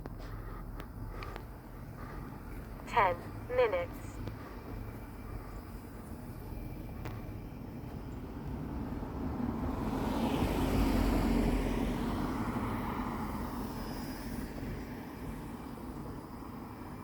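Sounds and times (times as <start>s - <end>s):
vehicle passing by: 8.7s - 14.4s.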